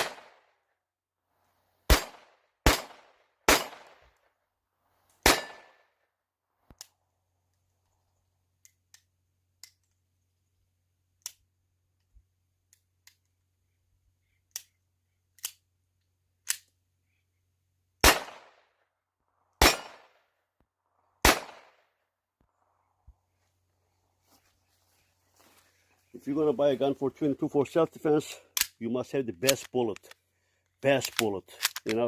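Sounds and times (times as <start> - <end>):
pistol shots with ringing tail: 0.0 - 0.4, 1.9 - 4.0, 5.2 - 5.9, 18.0 - 18.6, 19.6 - 20.2, 21.2 - 21.8.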